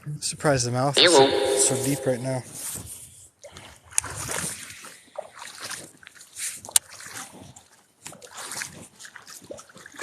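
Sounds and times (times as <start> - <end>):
legs wading through water: 5.1 - 10.0.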